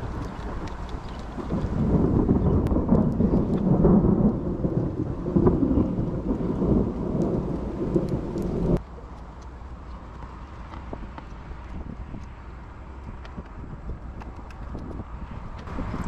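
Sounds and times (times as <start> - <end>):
heavy rumble of thunder: 0.0 - 8.8
rain falling: 0.0 - 16.0.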